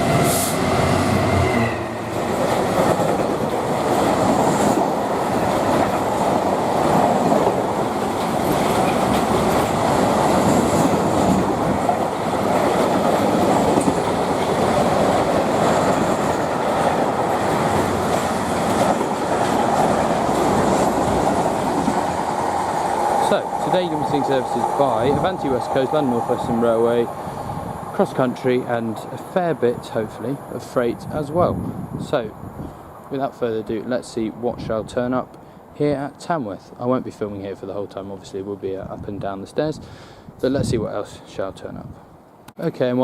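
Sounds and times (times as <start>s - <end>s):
freight train passing: 0.0s - 38.0s
wagon wheels clattering on track: 2.3s - 22.0s.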